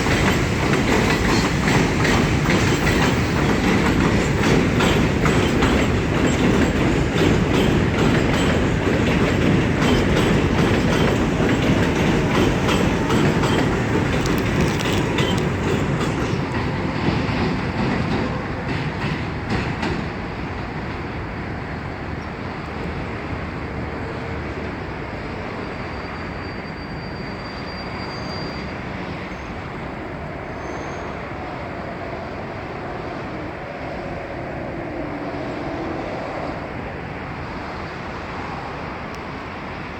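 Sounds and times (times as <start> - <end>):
wheels clicking over rail joints: 0.0 - 21.1
subway train rumble: 0.0 - 39.9.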